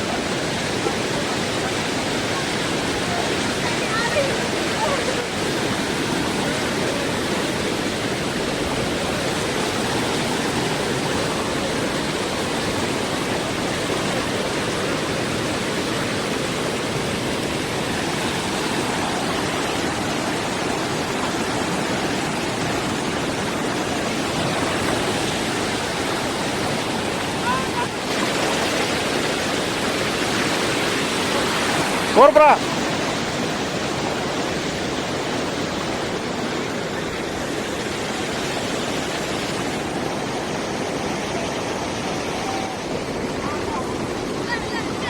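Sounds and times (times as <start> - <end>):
rushing floodwater: 0.0 - 45.0.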